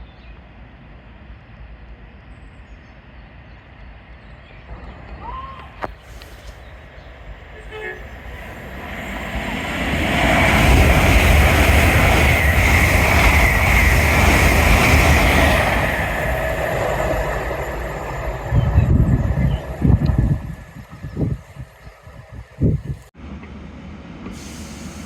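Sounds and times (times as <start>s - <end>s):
train passing at speed: 0.0s - 25.0s
wind buffeting microphone: 8.0s - 23.1s.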